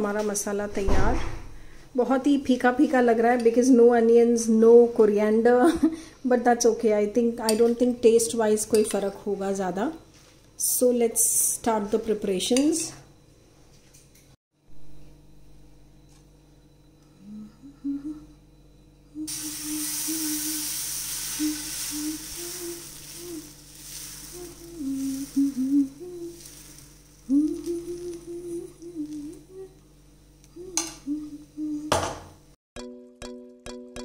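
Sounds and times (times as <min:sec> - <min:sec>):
woman humming: 0:17.1 - 0:32.1
batter sizzling on pan: 0:19.3 - 0:29.4.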